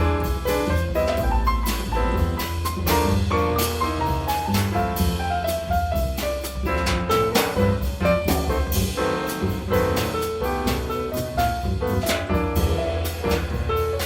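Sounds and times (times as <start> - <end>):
bass line: 0.0 - 14.0
drum kit strikes: 0.0 - 14.0
piano: 0.0 - 14.0.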